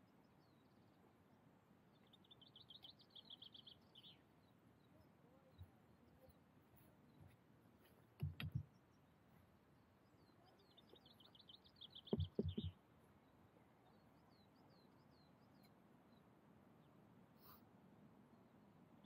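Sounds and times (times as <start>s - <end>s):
small bird chirping: 1.9s - 9.4s, 10.0s - 16.2s
low thumps: 8.2s - 8.6s, 12.1s - 12.7s.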